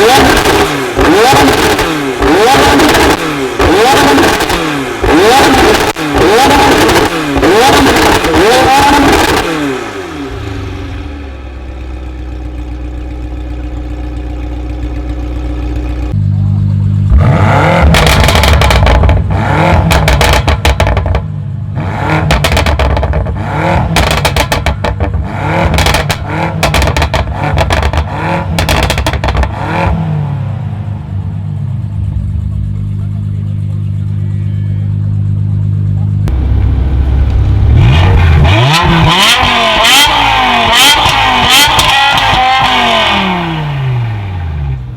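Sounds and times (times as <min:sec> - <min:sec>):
car engine idling and revving: 0:00.0 - 0:44.9
exhaust pops and cracks: 0:17.8 - 0:19.3, 0:19.9 - 0:21.3, 0:22.3 - 0:23.4, 0:24.0 - 0:29.5, 0:36.3 - 0:42.8.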